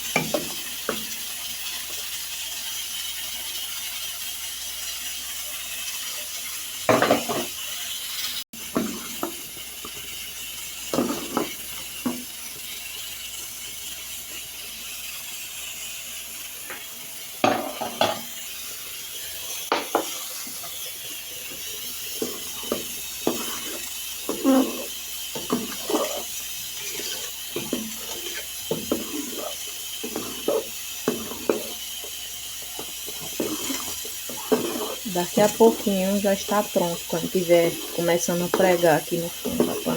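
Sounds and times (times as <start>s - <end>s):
spoon scraping a pan: 5.6s - 8.0s, 8.6s - 10.2s, 10.9s - 13.1s, 16.6s - 18.6s, 19.2s - 39.9s.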